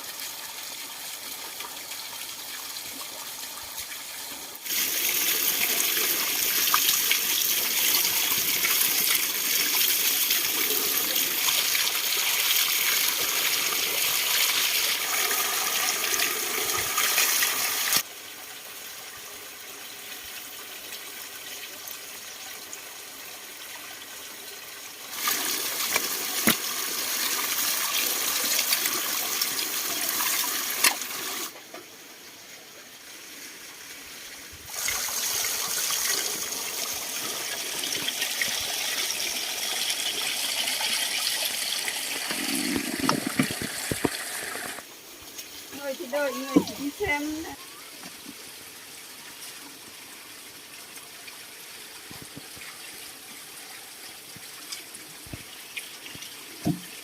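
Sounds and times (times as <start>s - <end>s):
running water gushing: 0.0s - 32.1s, 32.9s - 57.0s
water trickling: 34.6s - 57.0s.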